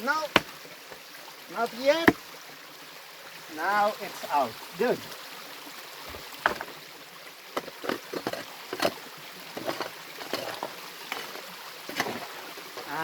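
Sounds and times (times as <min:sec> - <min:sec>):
stream rushing: 0:00.0 - 0:13.0
rocks knocking together: 0:00.2 - 0:01.0, 0:01.6 - 0:02.2, 0:06.1 - 0:06.8, 0:07.6 - 0:09.0, 0:09.6 - 0:13.0.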